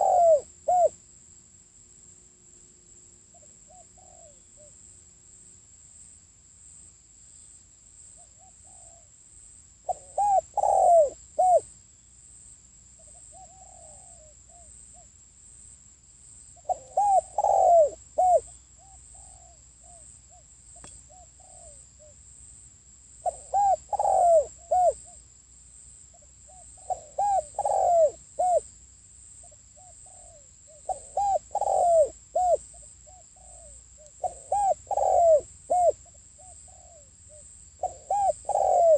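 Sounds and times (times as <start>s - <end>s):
dove cooing: 0.0s - 1.0s, 3.3s - 4.7s, 8.3s - 9.1s, 9.9s - 11.7s, 13.0s - 15.1s, 16.6s - 20.4s, 21.1s - 22.1s, 23.2s - 25.2s, 26.5s - 28.7s, 29.8s - 38.9s.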